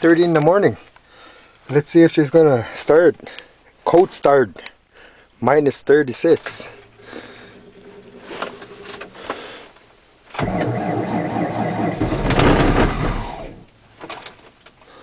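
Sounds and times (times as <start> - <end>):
car starter cranking: 10.3 - 14.4.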